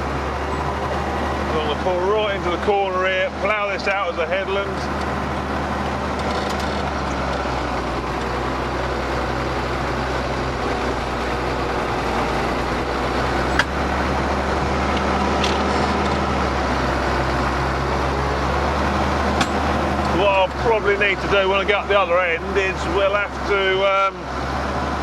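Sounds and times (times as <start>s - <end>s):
tractor diesel engine running: 0.0s - 25.0s
sharp clicks: 11.8s - 14.0s.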